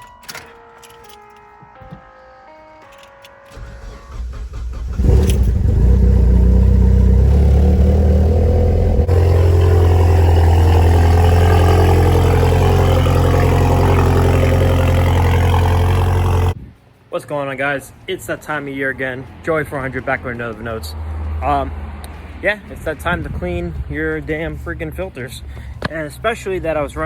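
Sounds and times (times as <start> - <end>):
vehicle engine running: 3.5 - 16.6.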